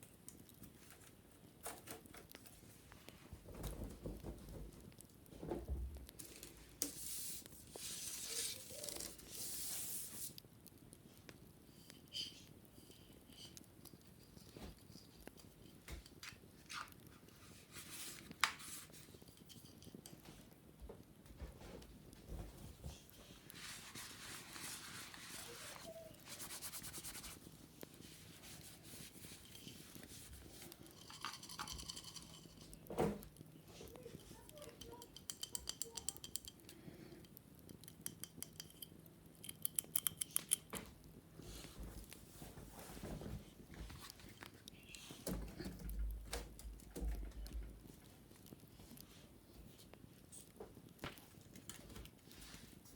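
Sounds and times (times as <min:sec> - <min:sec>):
wicker basket being scrubbed: 0:06.9 - 0:10.4, 0:23.4 - 0:32.6.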